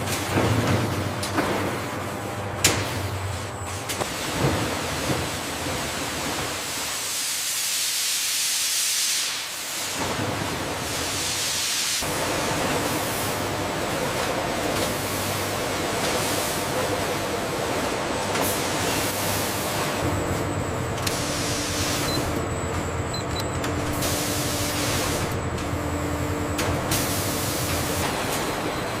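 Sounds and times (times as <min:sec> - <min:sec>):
factory machinery hiss and hum: 0:00.0 - 0:29.0
deeper drone and humming tone: 0:16.8 - 0:29.0.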